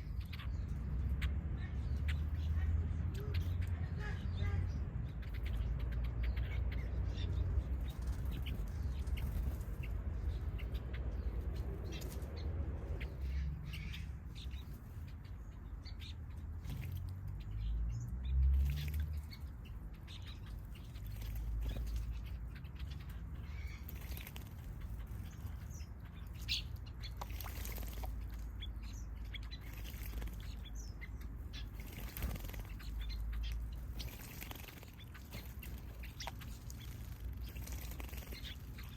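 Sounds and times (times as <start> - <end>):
steady low rumble: 0.0 - 18.3
birds chirping: 0.0 - 38.9
wings fluttering in water: 23.8 - 25.1, 27.1 - 28.4, 29.6 - 30.6, 31.6 - 38.9.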